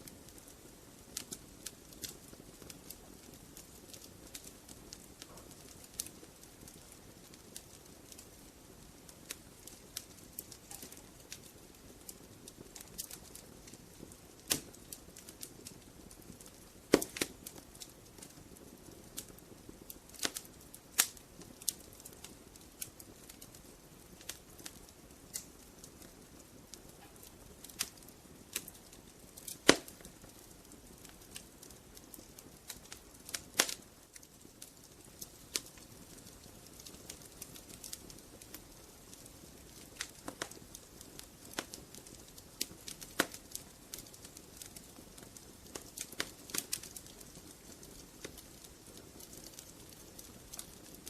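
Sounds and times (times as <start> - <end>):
wood fire crackling: 0.0 - 51.0
logs popping and snapping: 16.9 - 17.4, 29.4 - 30.1, 33.3 - 33.8, 43.0 - 43.4.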